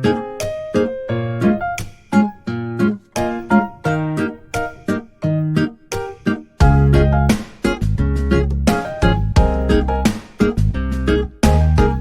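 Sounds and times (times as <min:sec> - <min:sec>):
bright rhythmic instrumental music: 0:00.0 - 0:12.0.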